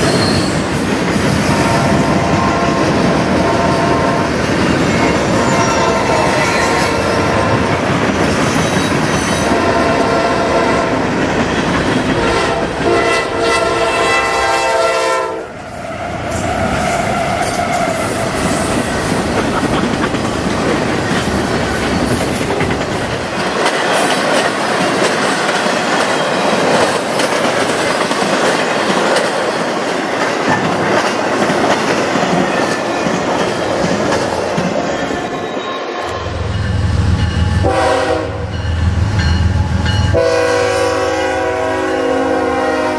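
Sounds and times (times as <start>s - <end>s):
train passing with wheel clatter: 0.0s - 42.9s
train air horn chord: 9.5s - 10.9s, 12.2s - 15.6s, 37.6s - 38.6s, 40.1s - 42.9s.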